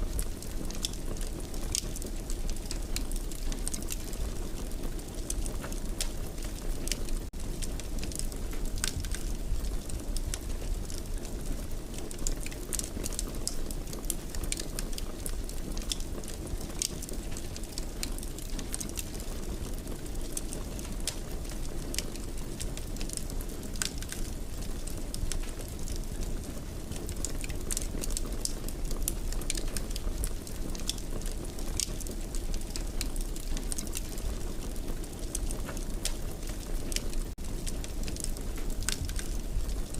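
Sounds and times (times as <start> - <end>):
fire pops and snaps: 0.2 - 39.9.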